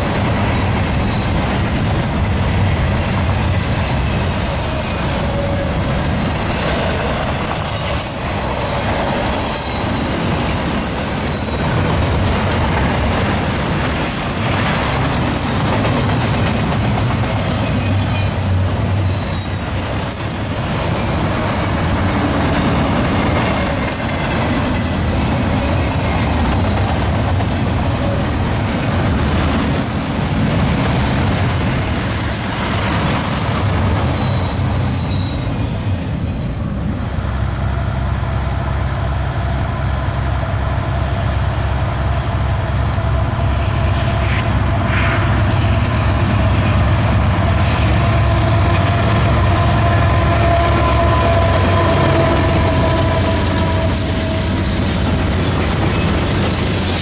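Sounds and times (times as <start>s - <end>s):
diesel locomotive engines droning: 0.0s - 57.0s
freight cars rolling on rails: 0.0s - 57.0s
wheels squealing: 6.7s - 11.8s, 12.4s - 15.7s, 17.4s - 26.4s, 31.4s - 36.9s.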